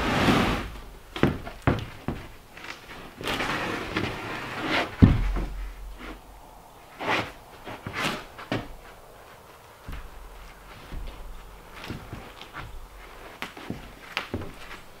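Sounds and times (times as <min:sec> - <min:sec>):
scraping: 0:00.0 - 0:15.0
knocks and thumps: 0:00.7 - 0:02.4, 0:04.9 - 0:06.2, 0:09.8 - 0:15.0.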